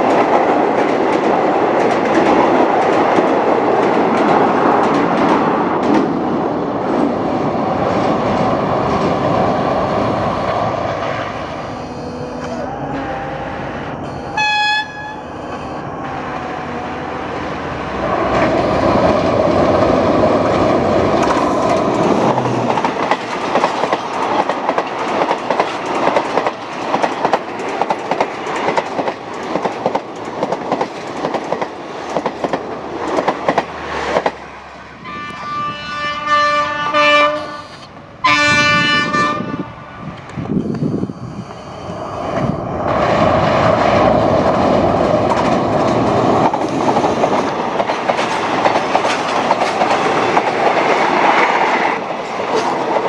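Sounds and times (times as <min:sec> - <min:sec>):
locomotive horn: 0:11.6 - 0:17.4, 0:35.0 - 0:39.8
wheels clicking over rail joints: 0:18.1 - 0:34.4, 0:42.3 - 0:53.0.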